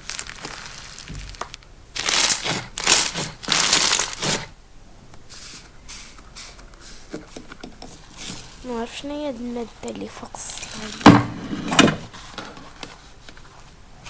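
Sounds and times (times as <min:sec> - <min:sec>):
hands squeezing slime: 0:00.0 - 0:04.5.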